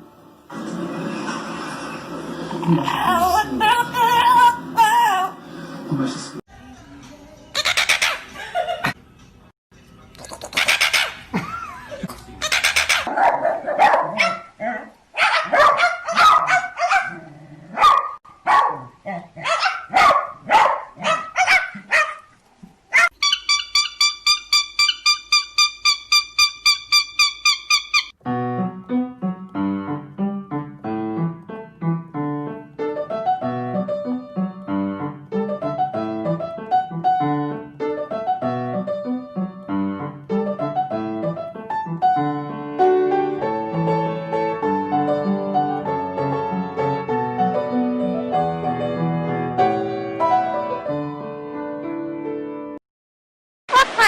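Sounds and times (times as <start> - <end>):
dog barking: 13.0 - 22.3, 22.9 - 23.2
piano music: 28.2 - 52.8.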